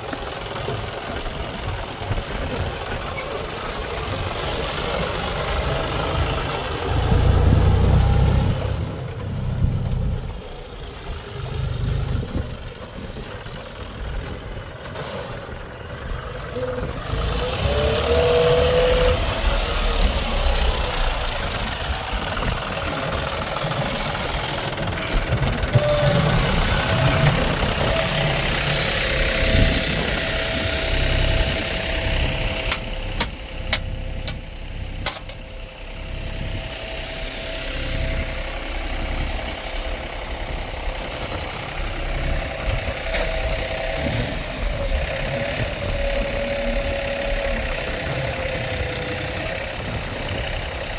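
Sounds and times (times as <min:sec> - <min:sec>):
diesel engine under load: 0:00.0 - 0:50.9
whine changing pitch: 0:16.4 - 0:22.6, 0:23.8 - 0:50.9.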